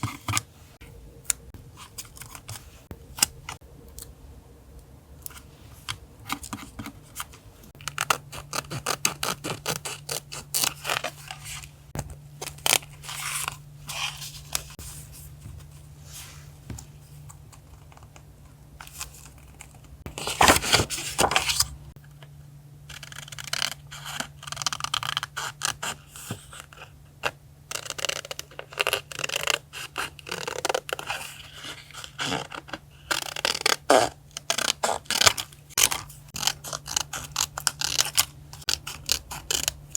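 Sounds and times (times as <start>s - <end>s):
steady low hum: 0.0s - 24.6s
paper scraping and tearing: 20.1s - 21.7s.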